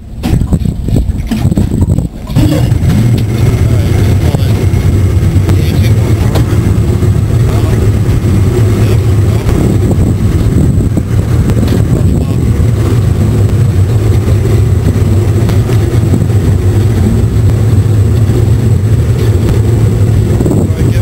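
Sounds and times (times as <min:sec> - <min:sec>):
outboard motor droning: 0:00.0 - 0:21.0.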